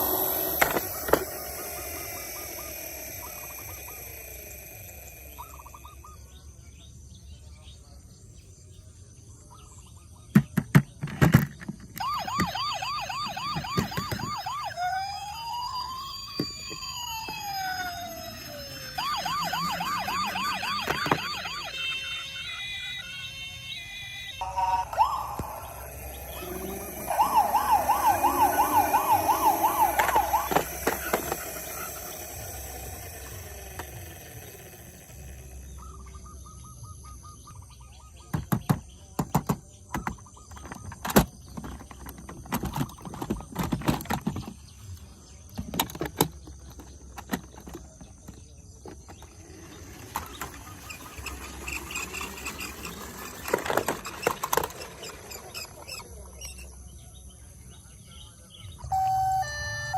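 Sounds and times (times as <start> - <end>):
toy siren warbling: 0.0 - 6.2, 12.0 - 36.4, 45.7 - 48.4, 49.1 - 56.8, 58.8 - 59.9
sharp clicks and knocks: 38.3 - 44.6.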